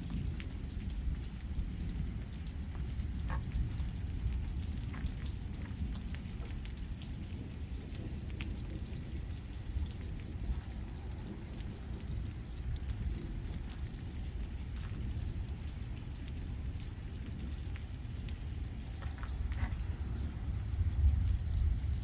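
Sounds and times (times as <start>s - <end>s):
rain pattering and dripping: 0.0s - 22.0s
steady low rumble: 18.2s - 22.0s.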